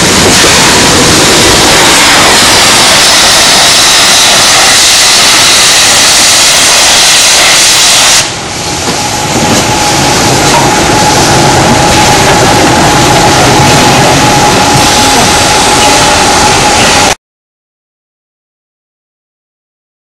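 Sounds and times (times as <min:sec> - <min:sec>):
locomotive low running rumble: 0:00.0 - 0:04.3, 0:08.2 - 0:17.2
steam hissing: 0:00.0 - 0:17.2.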